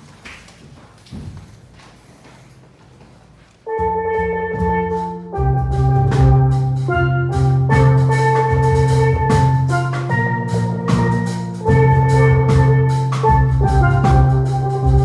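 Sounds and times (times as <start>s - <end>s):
bass line: 3.7s - 15.0s
drum beats: 3.7s - 15.0s
steel pan band playing: 3.7s - 15.0s.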